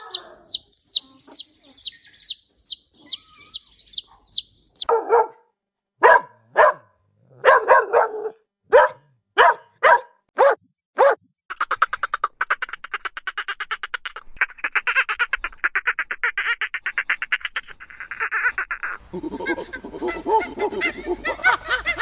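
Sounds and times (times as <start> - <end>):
bird chirping: 0.0 - 5.4, 6.0 - 10.1
dog barking: 4.8 - 5.4, 6.0 - 11.2.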